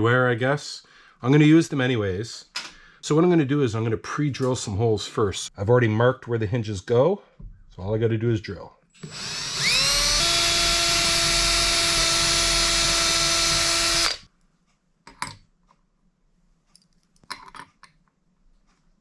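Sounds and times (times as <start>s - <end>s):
power drill whining: 9.0s - 14.3s.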